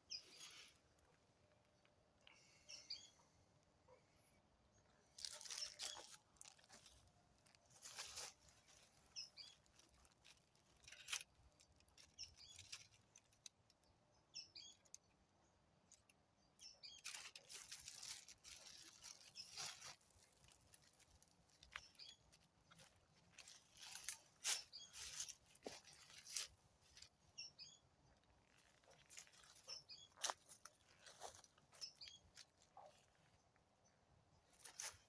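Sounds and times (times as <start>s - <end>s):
faint bird chirps: 0.0s - 11.1s, 11.7s - 35.0s
rustling of dry forest litter: 0.1s - 1.2s, 5.0s - 13.9s, 16.6s - 33.5s, 34.4s - 35.0s.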